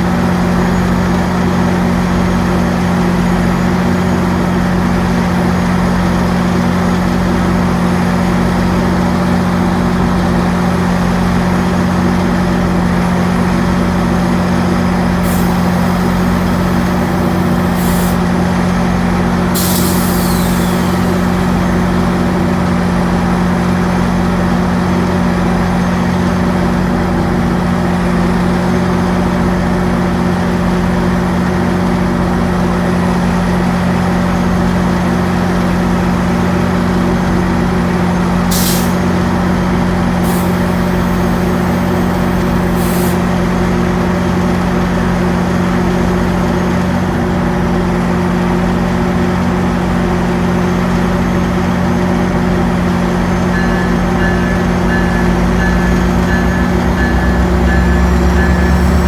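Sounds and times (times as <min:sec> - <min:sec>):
diesel locomotive idling: 0:00.0 - 0:59.0
air brake hisses: 0:15.2 - 0:18.3, 0:19.5 - 0:22.5, 0:38.5 - 0:39.2, 0:40.2 - 0:43.3, 0:52.9 - 0:59.0.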